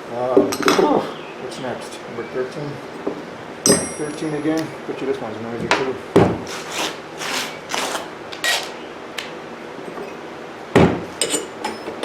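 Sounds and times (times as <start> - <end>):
metallic clank: 3.7 - 4.7
tools scraping on metal: 6.5 - 8.8, 11.1 - 12.0.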